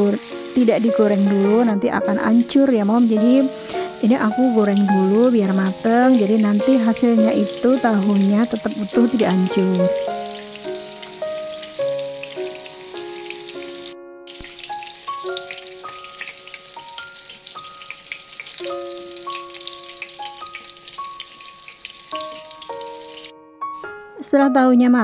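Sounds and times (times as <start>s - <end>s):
tofu sizzling in hot oil: 0.0s - 1.5s, 2.1s - 23.3s
background music of held notes: 0.0s - 25.0s.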